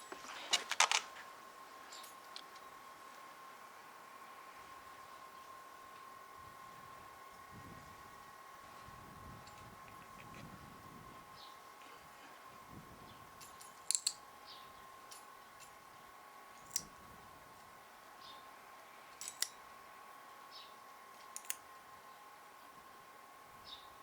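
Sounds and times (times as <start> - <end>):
faint steady hum: 0.0 - 24.0
nail clippers clicking: 13.4 - 14.2, 19.2 - 19.6, 21.3 - 21.6.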